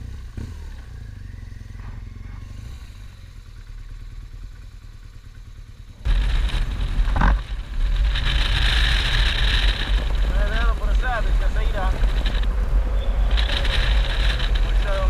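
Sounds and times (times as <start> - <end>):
motorcycle engine: 0.0 - 15.0
wind noise: 6.0 - 15.0.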